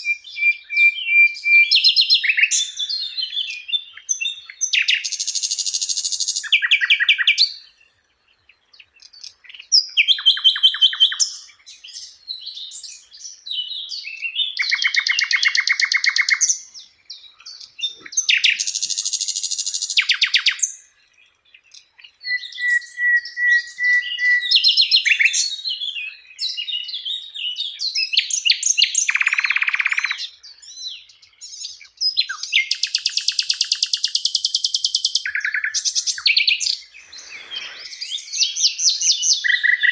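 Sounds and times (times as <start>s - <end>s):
flycatcher singing trills: 0.0s - 7.8s, 8.4s - 39.9s.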